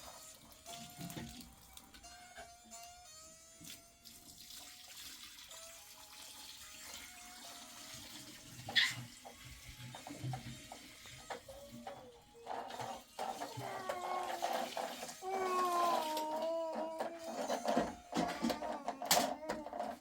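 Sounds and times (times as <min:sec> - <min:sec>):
water running and splashing: 0:03.6 - 0:17.8
small knocks: 0:16.1 - 0:20.0.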